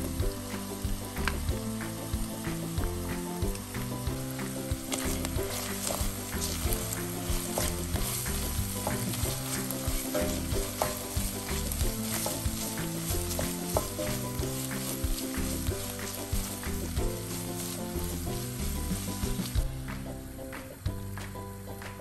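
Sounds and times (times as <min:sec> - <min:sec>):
food sizzling in a pot: 0:00.0 - 0:22.0
wooden spoon scraping a pan: 0:04.4 - 0:19.6.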